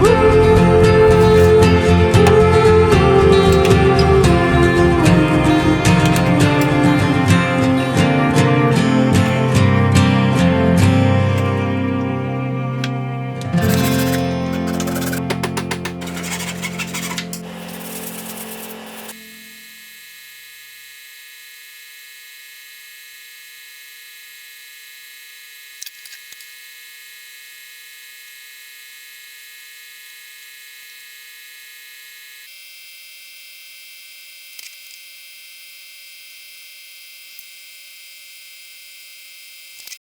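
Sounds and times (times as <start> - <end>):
background music: 0.0 - 16.4
high electrical hum: 0.0 - 25.2.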